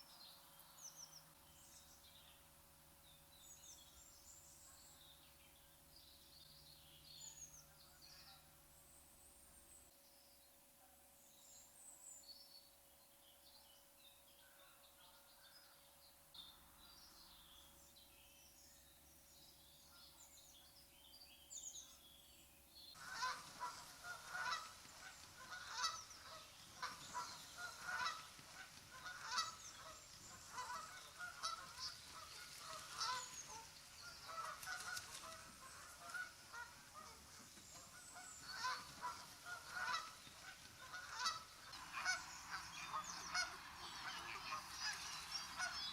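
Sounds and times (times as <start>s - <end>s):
small birds chirping: 15.4s - 45.9s
geese honking: 23.0s - 45.9s.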